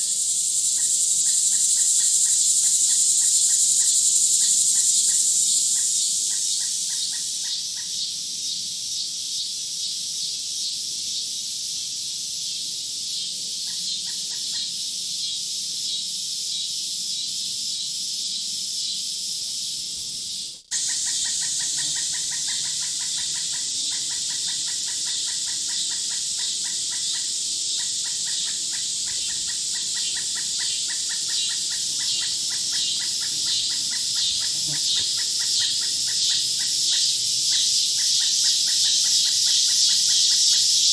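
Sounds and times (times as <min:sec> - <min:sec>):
high-pitched insect chorus: 0:00.0 - 0:40.9
fast chirping: 0:20.7 - 0:40.7.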